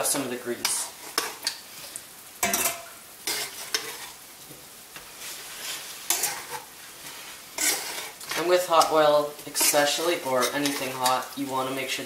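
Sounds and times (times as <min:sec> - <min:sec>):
potatoes sizzling in oil: 0:00.0 - 0:12.0
metal tongs scraping pan: 0:00.6 - 0:01.6, 0:02.4 - 0:04.2, 0:05.6 - 0:12.0.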